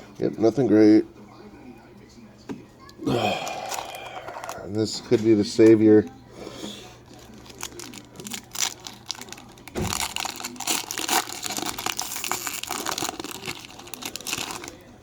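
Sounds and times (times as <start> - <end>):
wrapper crinkling and tearing: 3.3 - 4.7, 7.0 - 15.0.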